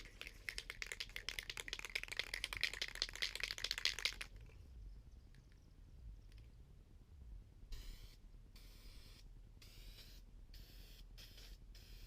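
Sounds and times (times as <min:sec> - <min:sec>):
aerosol can shaking with ball rattling: 0:00.0 - 0:04.6.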